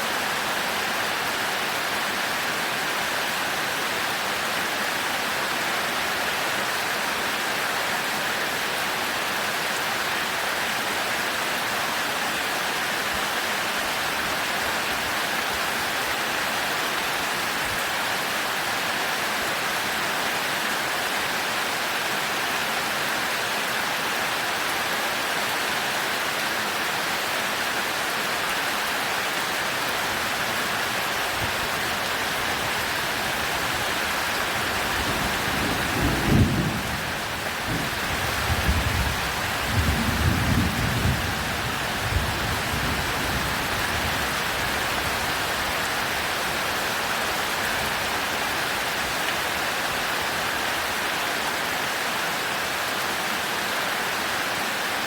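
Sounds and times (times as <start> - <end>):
heavy rain pouring: 0.0 - 55.0
thunder rumbling: 35.0 - 43.7.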